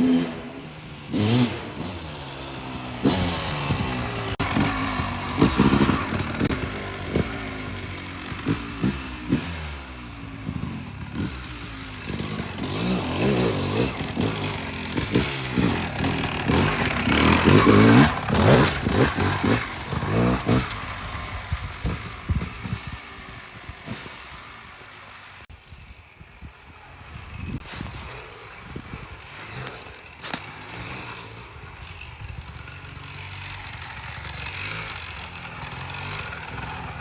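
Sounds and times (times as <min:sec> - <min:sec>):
two-stroke dirt bike engine revving: 0:00.0 - 0:37.0.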